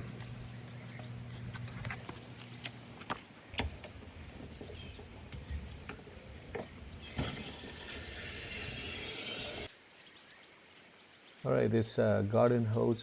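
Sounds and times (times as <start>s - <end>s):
light clicks and knocks: 0.0s - 7.5s.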